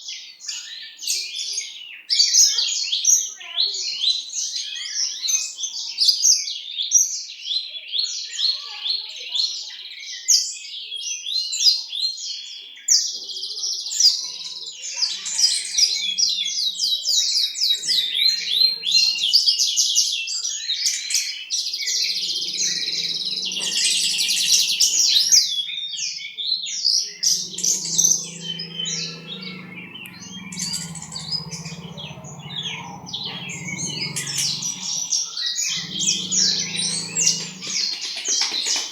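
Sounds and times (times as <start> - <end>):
bird singing chirps and trills: 14.1 - 19.4, 21.7 - 38.9
low hum: 27.2 - 38.0.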